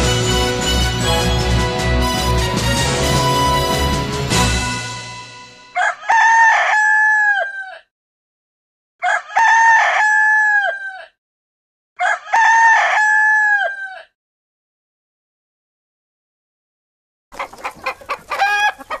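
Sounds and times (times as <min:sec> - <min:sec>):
rooster crowing: 0:05.8 - 0:07.9, 0:09.0 - 0:11.2, 0:12.0 - 0:14.2, 0:18.3 - 0:19.0.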